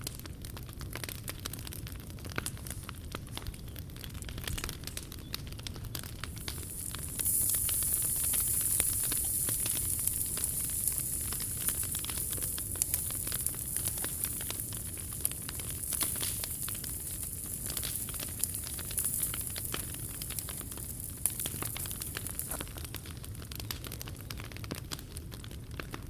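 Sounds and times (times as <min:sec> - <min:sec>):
wood fire crackling and popping: 0:00.0 - 0:26.0
steady high hiss: 0:06.0 - 0:23.4.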